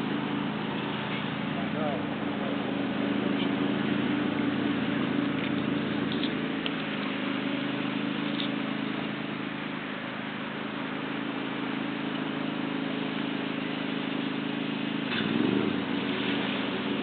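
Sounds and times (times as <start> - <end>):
motor engine running: 0.0 - 17.0.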